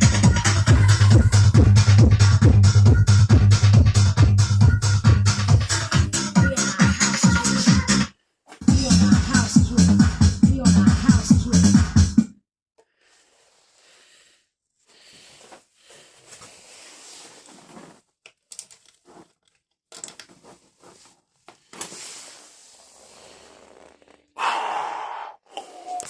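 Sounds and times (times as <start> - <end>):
rustling and crackling: 15.2 - 24.3.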